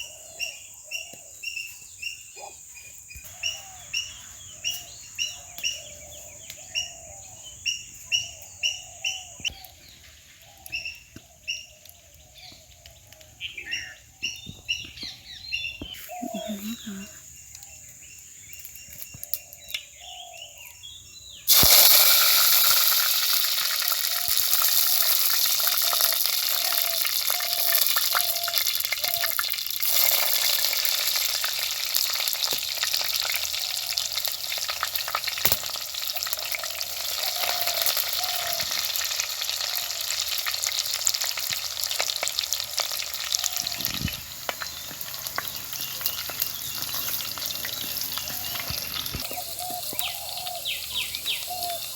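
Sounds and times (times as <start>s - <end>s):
faint bird chirps: 0.0s - 21.5s, 43.2s - 51.9s
food sizzling in hot oil: 21.5s - 51.9s.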